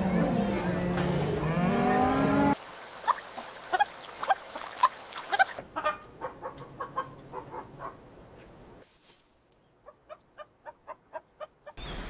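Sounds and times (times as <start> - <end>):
chickens clucking: 5.3 - 8.0, 9.8 - 11.8.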